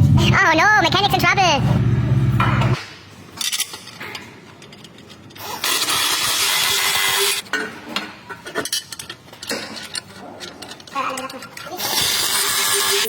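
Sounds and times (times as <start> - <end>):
tools clinking and knocking: 3.4 - 5.4, 7.4 - 12.2.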